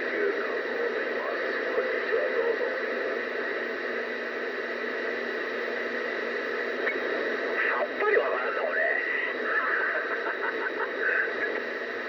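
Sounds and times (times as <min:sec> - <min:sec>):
faint distant radio voices: 0:00.0 - 0:09.6
radio static hiss: 0:00.0 - 0:12.0.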